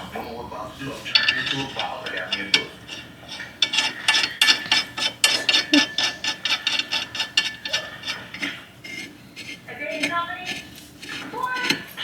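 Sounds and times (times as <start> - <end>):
ratchet wrench clicking: 1.0 - 9.0.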